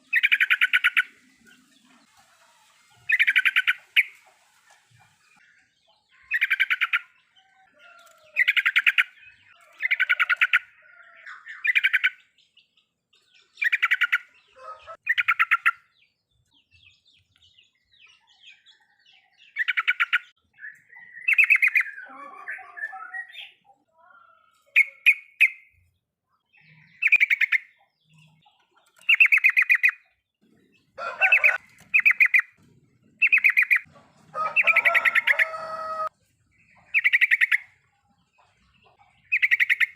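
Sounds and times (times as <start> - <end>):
bulbul chattering calls: 0.0 - 1.8, 33.2 - 33.9, 36.8 - 37.8, 39.2 - 39.9.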